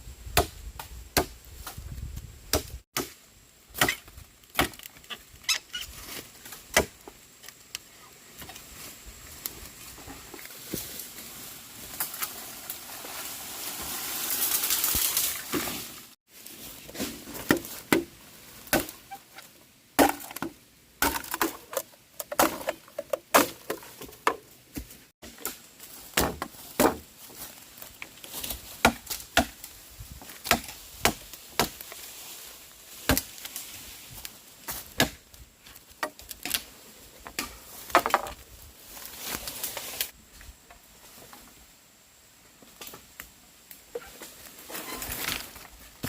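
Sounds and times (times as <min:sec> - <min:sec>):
wood being chopped: 0:00.4 - 0:01.4, 0:02.5 - 0:03.2, 0:03.8 - 0:05.0, 0:06.7 - 0:07.1, 0:17.4 - 0:19.0, 0:20.0 - 0:27.0, 0:28.8 - 0:29.6, 0:30.3 - 0:31.8, 0:33.1 - 0:33.4, 0:34.7 - 0:35.2.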